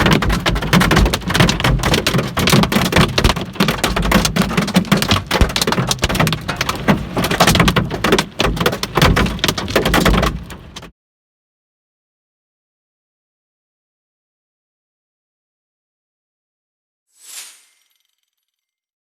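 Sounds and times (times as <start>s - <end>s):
large hail clattering: 0.0s - 10.9s.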